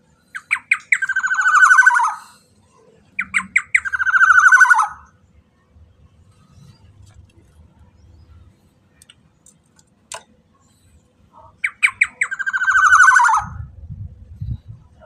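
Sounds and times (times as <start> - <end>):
oriole harsh calls: 0.4 - 2.4, 3.2 - 5.1, 11.3 - 13.6
faint low rumble: 13.4 - 15.0.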